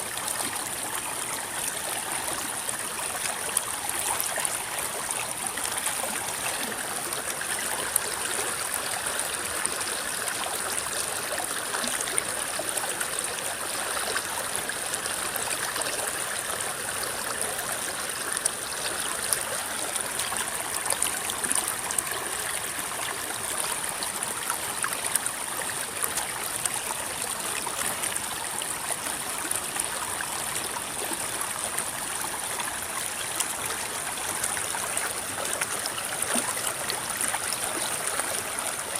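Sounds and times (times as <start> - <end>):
river water flowing: 0.0 - 38.9
water splashes and gurgles: 0.0 - 38.9.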